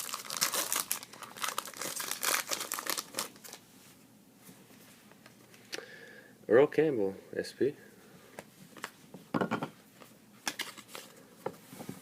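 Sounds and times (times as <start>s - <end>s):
wrappers crinkling: 0.0s - 3.6s.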